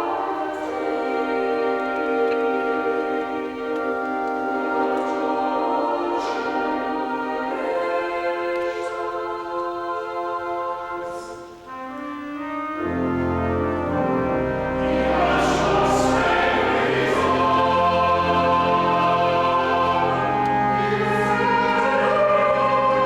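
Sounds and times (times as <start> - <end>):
pipe organ chords: 0.0 - 8.7, 11.7 - 23.0
choir singing: 0.0 - 23.0
deep organ bass: 13.0 - 23.0.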